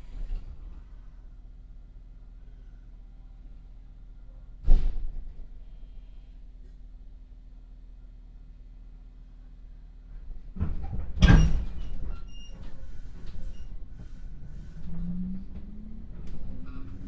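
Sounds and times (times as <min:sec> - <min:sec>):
train doors sliding shut: 0:04.6 - 0:05.5, 0:10.7 - 0:17.0.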